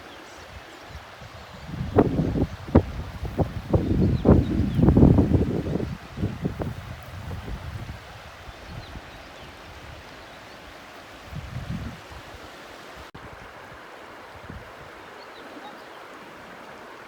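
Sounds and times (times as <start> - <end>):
waterfall rushing: 0.0 - 17.0
wind buffeting microphone: 0.4 - 10.2, 11.2 - 12.5.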